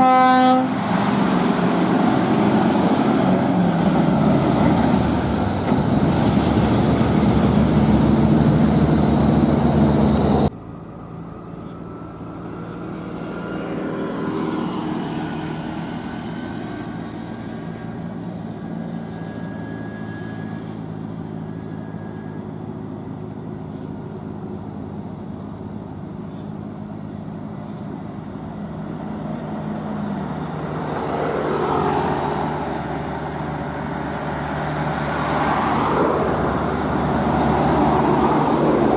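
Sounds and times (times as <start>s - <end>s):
road noise: 0.0s - 38.9s
diesel truck engine: 0.6s - 13.8s, 14.4s - 38.9s.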